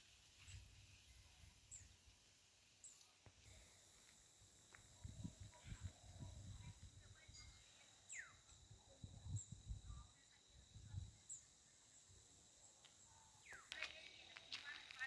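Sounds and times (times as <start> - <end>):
bird chirps: 7.2 - 8.6, 13.0 - 15.0.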